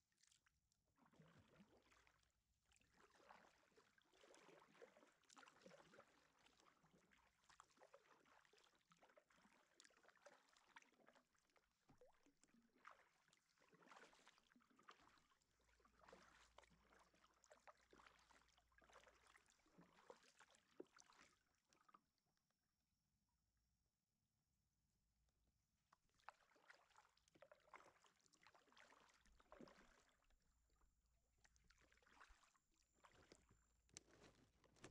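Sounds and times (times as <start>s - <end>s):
paddle splashing in water: 1.0s - 6.3s, 11.9s - 15.2s, 15.9s - 21.9s, 26.1s - 30.4s, 31.5s - 34.9s.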